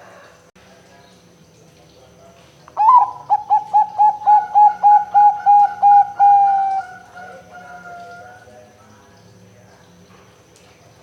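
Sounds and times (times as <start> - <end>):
dove cooing: 2.8 - 8.5.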